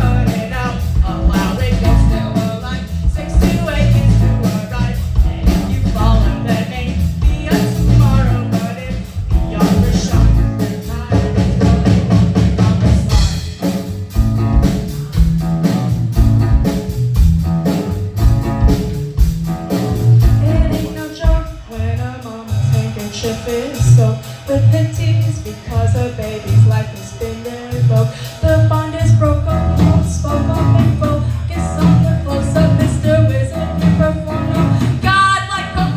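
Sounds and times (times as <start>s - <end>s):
woman singing: 0.0s - 11.6s, 20.3s - 35.9s
bass guitar: 0.0s - 35.9s
drum kit: 0.0s - 35.9s.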